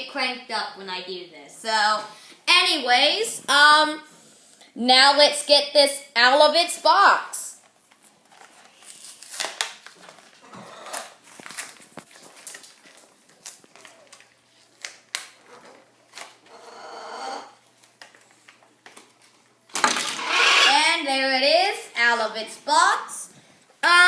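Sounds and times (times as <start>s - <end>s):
scraping and rustling of packaging: 7.7s - 16.6s.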